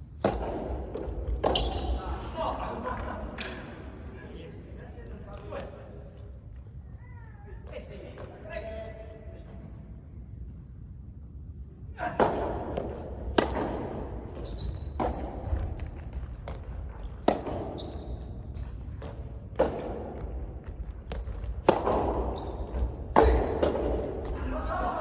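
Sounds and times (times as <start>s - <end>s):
rackets hitting tennis ball: 0.1s - 2.0s, 12.0s - 24.6s
shoes squeaking on court: 1.4s - 2.3s, 12.7s - 19.6s, 20.6s - 24.4s.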